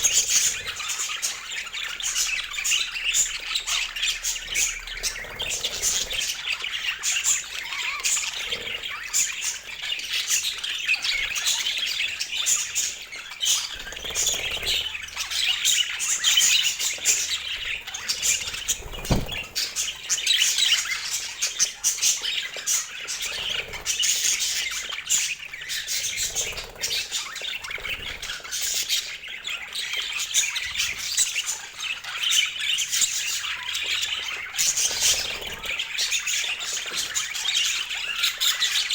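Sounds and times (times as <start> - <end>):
budgerigars chattering: 0.0 - 38.9
low thump: 19.0 - 19.5.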